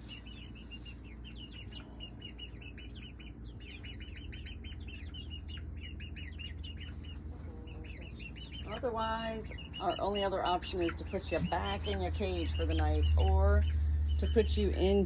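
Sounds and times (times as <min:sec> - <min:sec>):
baby chicks peeping: 0:00.0 - 0:15.0
steady low hum: 0:00.0 - 0:15.0.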